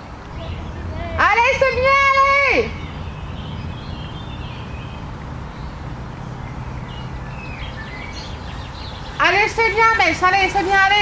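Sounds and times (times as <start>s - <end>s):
birds chirping: 0.0s - 11.0s
low outdoor rumble: 0.0s - 11.0s.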